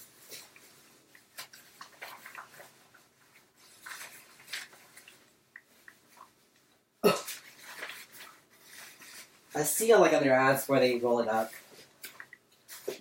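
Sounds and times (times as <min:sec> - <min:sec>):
fabric rustling: 0:00.0 - 0:13.0.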